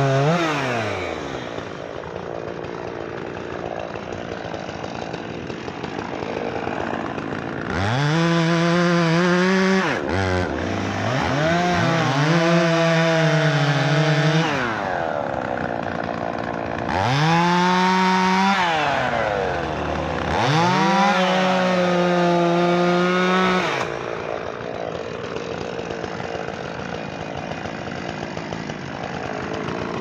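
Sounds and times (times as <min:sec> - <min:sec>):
chainsaw revving: 0:00.0 - 0:30.0.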